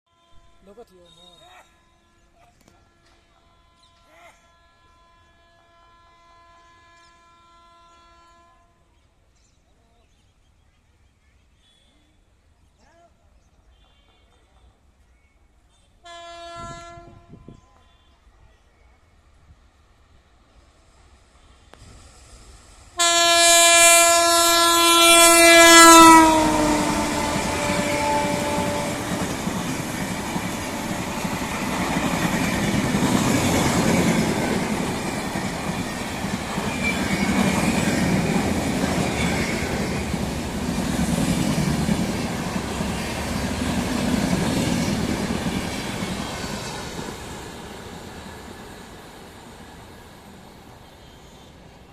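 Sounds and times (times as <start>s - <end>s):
locomotive horn blast: 16.0s - 17.6s, 23.0s - 46.6s
train coaches rumbling and clattering: 24.2s - 51.9s.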